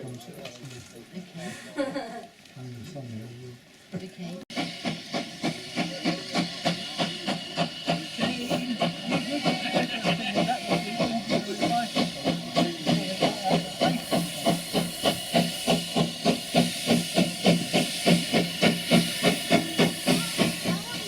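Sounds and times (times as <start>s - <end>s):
steam engine chuffing: 4.5s - 21.0s
steam hiss: 4.5s - 21.0s.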